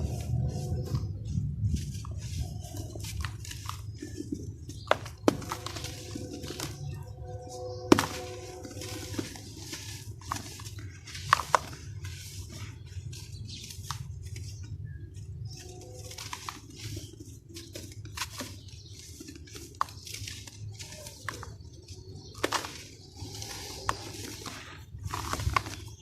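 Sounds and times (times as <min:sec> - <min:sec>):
low steady hum: 0:00.0 - 0:26.0
sand crunching: 0:07.7 - 0:14.7, 0:15.5 - 0:26.0.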